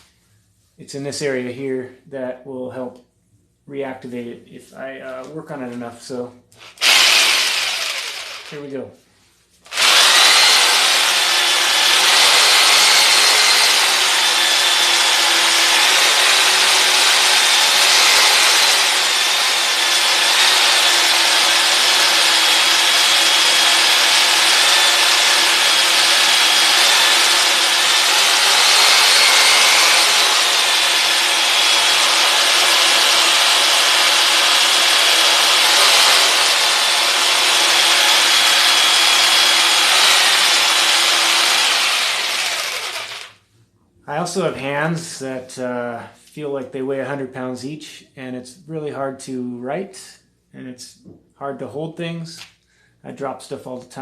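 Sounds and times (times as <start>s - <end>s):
electric jigsaw buzzing: 6.6s - 8.6s, 9.7s - 43.4s.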